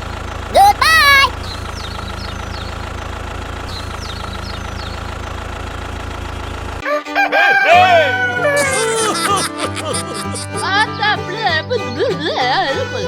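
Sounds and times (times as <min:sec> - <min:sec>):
tractor engine idling: 0:00.0 - 0:06.8
rooster crowing: 0:06.8 - 0:10.5.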